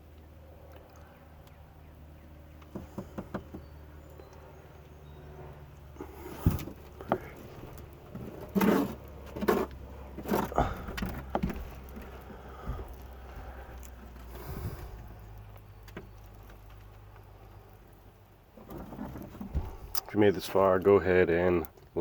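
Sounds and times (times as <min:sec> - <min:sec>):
low hum: 0:00.0 - 0:20.5
knocks and scraping in boat hull: 0:02.6 - 0:03.8, 0:06.0 - 0:17.0, 0:18.5 - 0:20.9.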